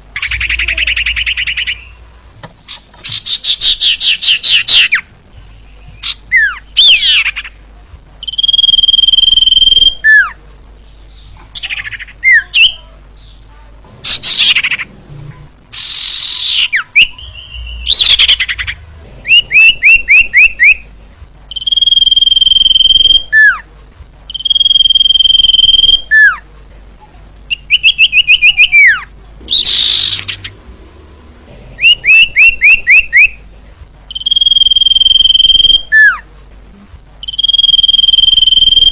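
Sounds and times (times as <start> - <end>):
harsh rasping bird calls: 0.2 - 7.6, 14.0 - 15.0, 15.7 - 20.8, 27.5 - 30.7, 31.8 - 33.4
bird singing whistles: 8.2 - 10.4, 15.8 - 18.7, 19.3 - 20.8, 21.5 - 23.6, 24.3 - 26.4, 27.5 - 30.5, 31.8 - 33.4, 34.1 - 36.2, 37.2 - 38.9.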